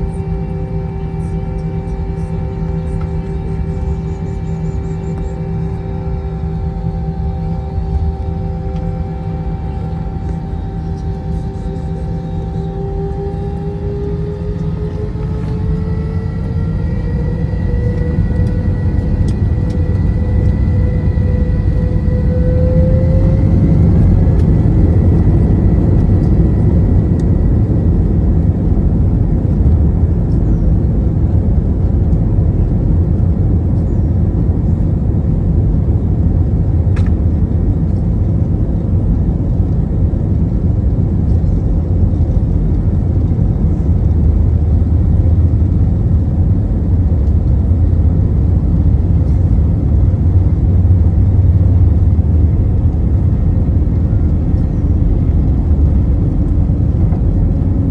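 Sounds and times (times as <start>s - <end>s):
airplane cabin engine noise: 0.0s - 57.9s
whine: 0.0s - 57.9s.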